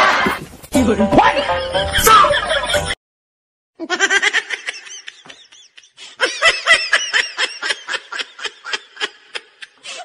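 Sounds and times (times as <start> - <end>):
high-pitched human laughter: 3.8 - 10.0.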